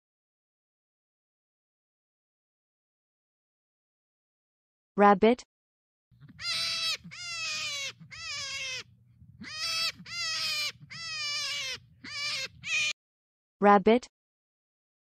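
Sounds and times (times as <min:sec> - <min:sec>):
rabbit crying: 0:06.2 - 0:13.0.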